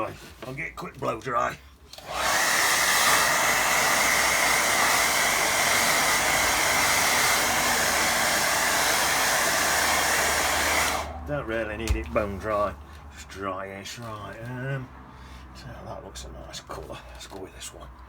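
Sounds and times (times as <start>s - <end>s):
hair dryer running: 1.9s - 11.2s.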